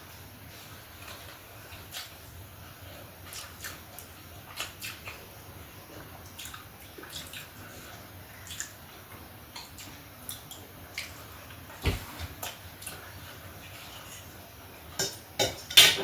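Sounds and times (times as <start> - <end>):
wet chewing and smacking: 3.2 - 11.2.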